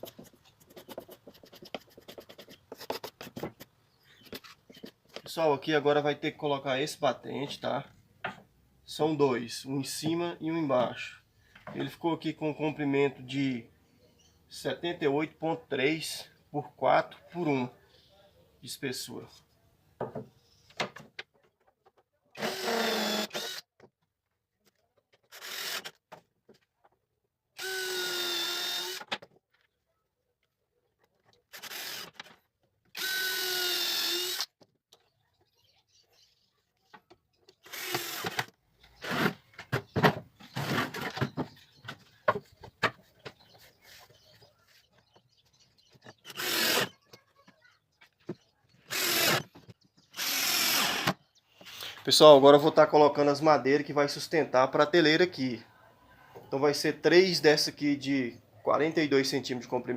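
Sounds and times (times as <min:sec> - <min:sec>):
wood and tools clattering: 0:20.0 - 0:27.0, 0:36.9 - 0:51.7
power drill running: 0:22.4 - 0:23.6, 0:25.3 - 0:26.0, 0:27.6 - 0:29.0, 0:31.5 - 0:32.2, 0:32.9 - 0:34.5, 0:37.6 - 0:38.5, 0:46.3 - 0:46.9, 0:48.9 - 0:49.5, 0:50.2 - 0:51.2.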